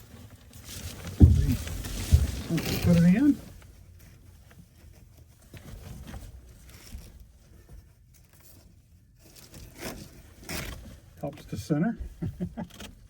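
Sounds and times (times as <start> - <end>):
cover rustling and scraping: 0.0 - 8.6.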